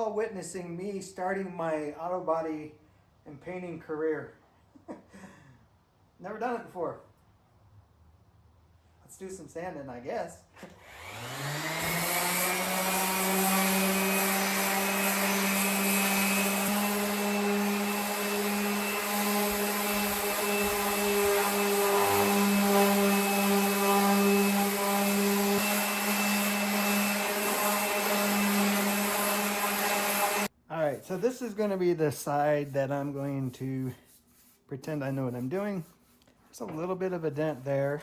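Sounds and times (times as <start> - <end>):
orbital sander running: 10.8 - 30.5.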